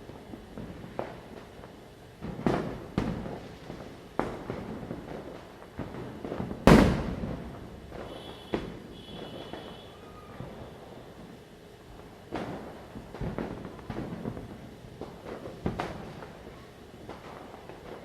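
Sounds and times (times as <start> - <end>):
firecrackers bursting with echo: 0.0 - 18.0.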